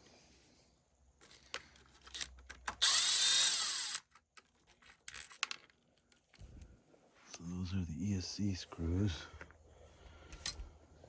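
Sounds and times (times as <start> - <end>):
small parts clicking: 1.2 - 6.5, 10.3 - 10.6
electric screwdriver running: 2.8 - 4.1.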